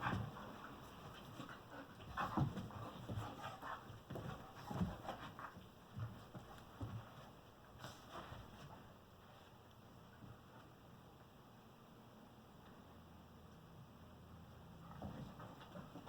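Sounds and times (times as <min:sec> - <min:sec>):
dogs panting: 0:00.0 - 0:07.1.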